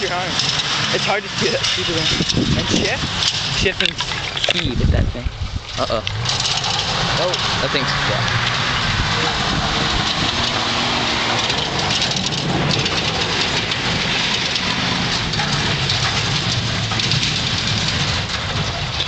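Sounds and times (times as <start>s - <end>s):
tires spinning hiss: 0.0s - 18.5s
engine revving hard: 5.8s - 18.2s.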